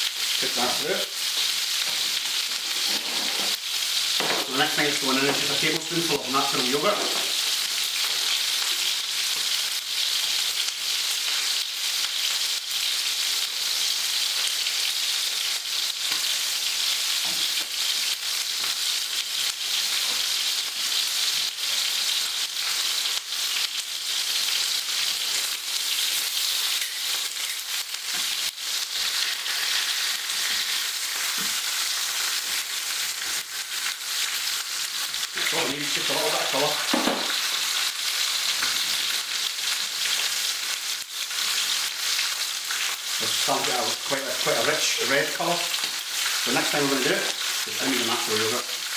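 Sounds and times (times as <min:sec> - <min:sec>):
puree sizzling in a hot pan: 0:00.0 - 0:48.9.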